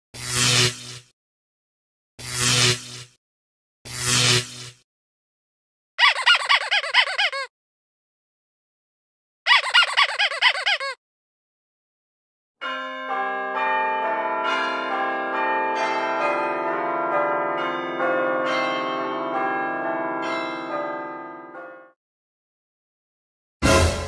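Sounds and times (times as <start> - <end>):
church bells pealing: 12.6 - 22.0.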